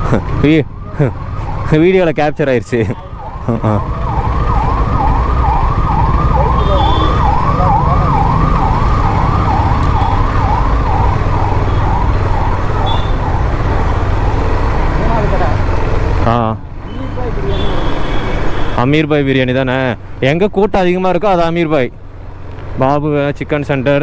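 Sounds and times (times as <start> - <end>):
emergency siren wailing: 0.0 - 15.8
low road noise rumble: 0.0 - 24.0.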